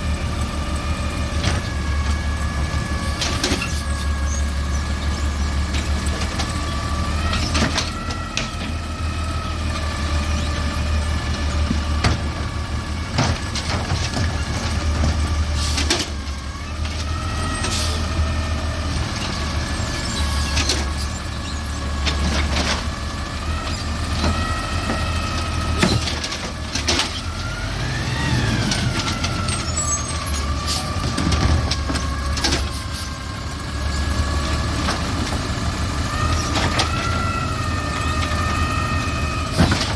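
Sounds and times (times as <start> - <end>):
garbage truck engine humming: 0.0 - 39.9
knocks and clanks: 11.6 - 12.5, 13.1 - 16.2, 24.1 - 27.3, 39.5 - 39.9.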